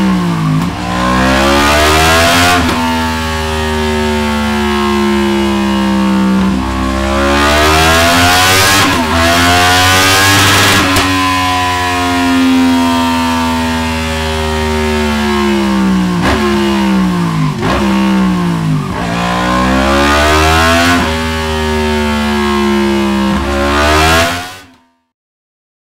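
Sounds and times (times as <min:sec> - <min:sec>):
motorcycle engine revving: 0:00.0 - 0:24.7.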